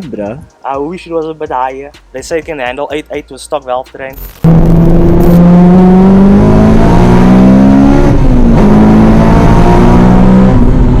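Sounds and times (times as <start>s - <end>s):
car engine accelerating: 4.2s - 11.0s.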